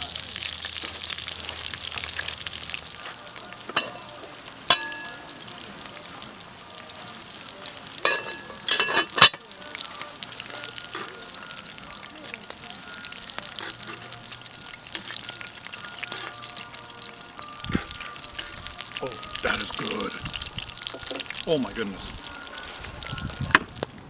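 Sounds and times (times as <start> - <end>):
food sizzling in a frying pan: 0.0 - 24.0
utensil clinking against pan: 3.0 - 5.7, 8.0 - 23.6.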